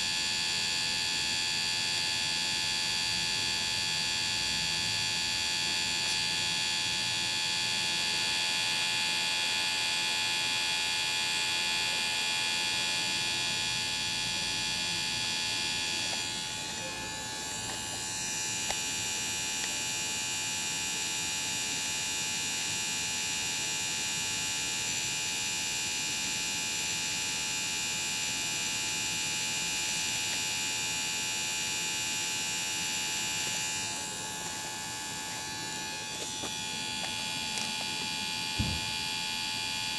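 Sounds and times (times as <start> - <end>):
small electric motor whining: 14.1 - 21.6, 28.3 - 39.9.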